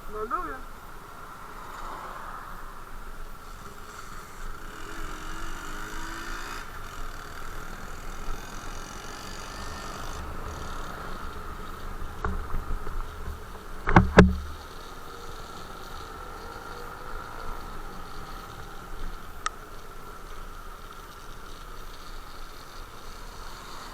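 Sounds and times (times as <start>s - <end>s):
motorcycle engine running: 3.4s - 23.9s
loud sharp knocks: 13.8s - 14.6s.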